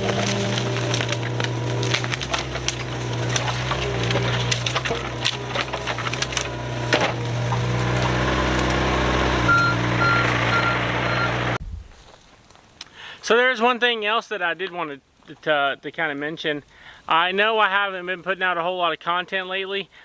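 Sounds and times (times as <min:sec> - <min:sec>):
excavator engine running: 0:00.0 - 0:11.9
wood cracking and splintering: 0:00.0 - 0:12.6.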